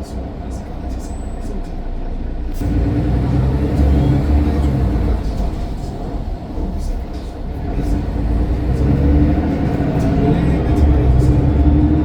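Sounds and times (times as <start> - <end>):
bus engine rumbling: 0.0 - 12.0.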